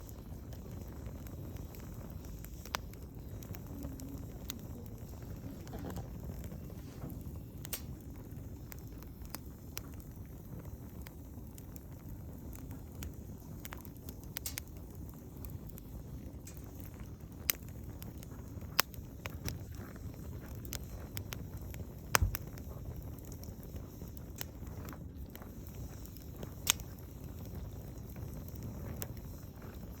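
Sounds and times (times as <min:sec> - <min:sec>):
campfire crackling: 0:00.0 - 0:30.0.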